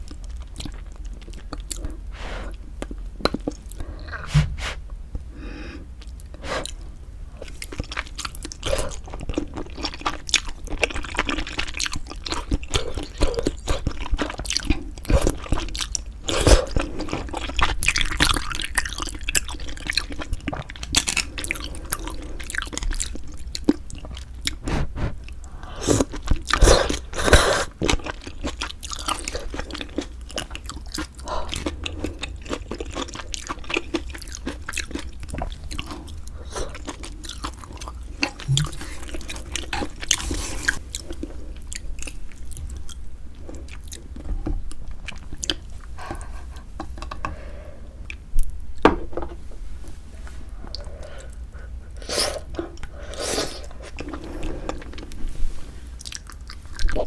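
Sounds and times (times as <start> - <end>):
chewing: 0.0 - 4.5, 7.4 - 47.4, 50.6 - 55.2, 56.0 - 57.0
wet mouth clicks: 38.5 - 39.2.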